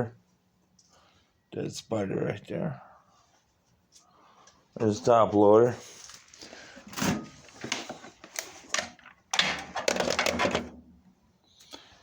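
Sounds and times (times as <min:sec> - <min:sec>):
cast-iron stove parts clanking: 0:08.7 - 0:10.8.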